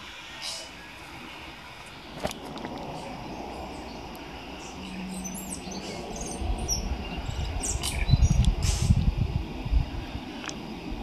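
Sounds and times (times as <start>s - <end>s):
forest birds chirping: 0.0s - 11.0s
steady background hiss: 0.0s - 11.0s
low rumble on microphone: 1.9s - 11.0s.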